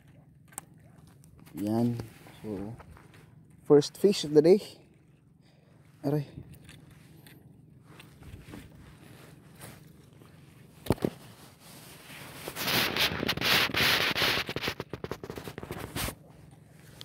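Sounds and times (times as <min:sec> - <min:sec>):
fish thrashing crackling and scraping: 0:06.4 - 0:17.0.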